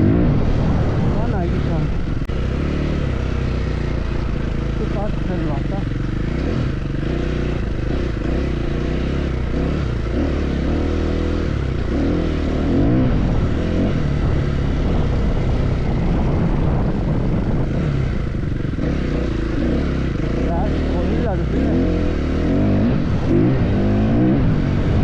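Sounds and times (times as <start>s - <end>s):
wind rushing: 0.0s - 4.8s, 11.6s - 20.3s, 22.0s - 25.0s
motorcycle engine revving: 0.0s - 25.0s.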